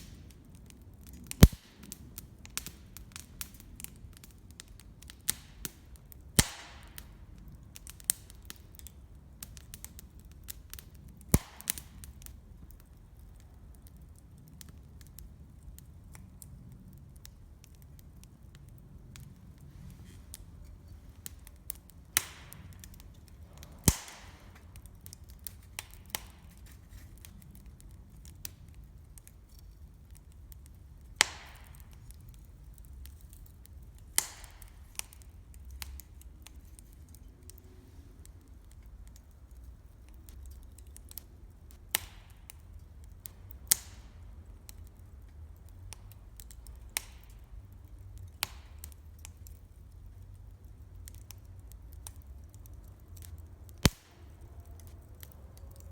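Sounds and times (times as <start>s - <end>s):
campfire crackling and popping: 0.0s - 55.9s
low rumble of fire: 0.0s - 55.9s.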